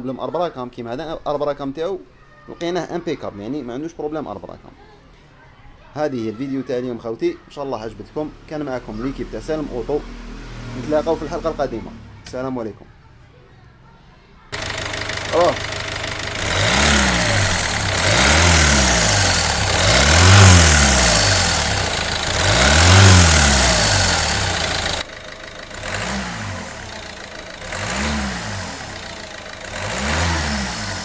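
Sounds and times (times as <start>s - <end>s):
diesel engine revving: 8.1s - 12.2s, 14.6s - 31.0s.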